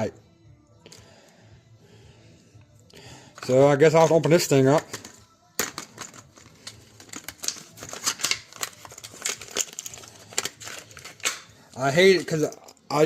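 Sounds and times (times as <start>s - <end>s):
tools and metal parts clicking: 4.7s - 13.0s.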